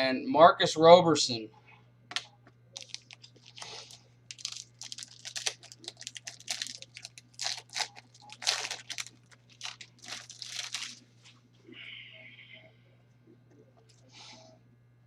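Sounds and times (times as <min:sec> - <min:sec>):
wrapper crinkling and tearing: 0:02.7 - 0:11.1.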